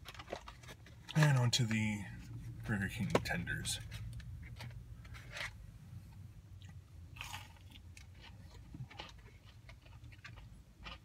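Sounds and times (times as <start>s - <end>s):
chewing with crackles: 6.6s - 11.0s
crunchy bite of breaded chicken: 7.2s - 11.0s.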